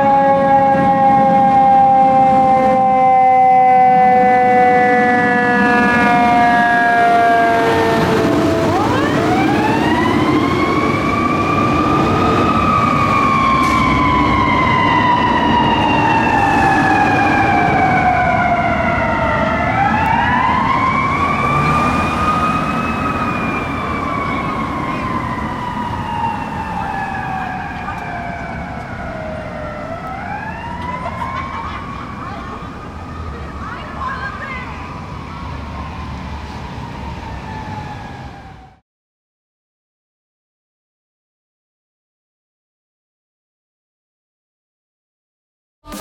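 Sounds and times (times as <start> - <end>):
mechanical siren wailing: 0.0 - 38.8
diesel engine running: 13.4 - 36.7.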